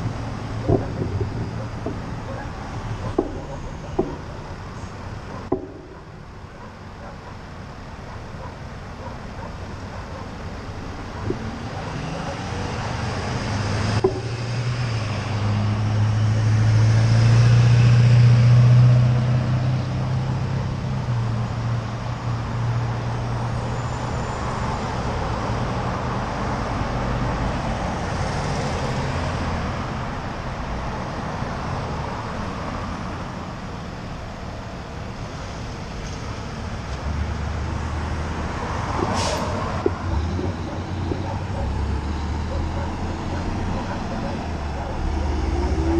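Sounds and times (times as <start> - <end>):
road noise: 0.0 - 45.9
vehicle engine drone passing: 10.6 - 21.3, 35.4 - 45.9.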